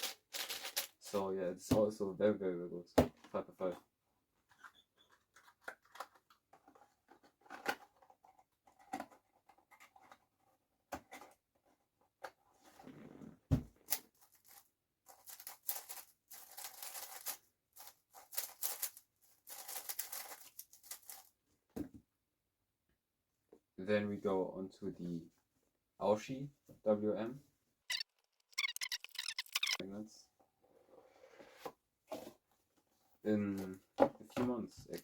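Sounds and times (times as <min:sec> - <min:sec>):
puzzle cube clicking: 0:27.9 - 0:29.8.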